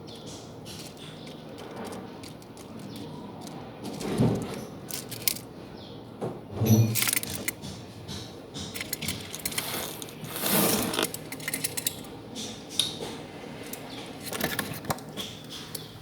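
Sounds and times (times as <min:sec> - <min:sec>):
bird scratching inside a box: 0:09.0 - 0:11.3.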